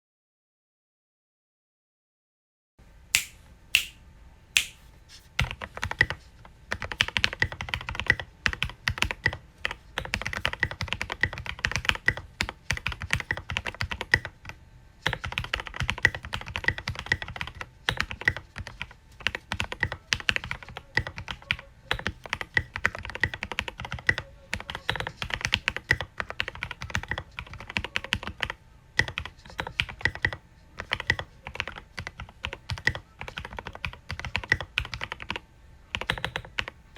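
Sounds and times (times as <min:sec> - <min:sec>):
mechanical keyboard keystroke clacks: 0:36.0 - 0:36.8.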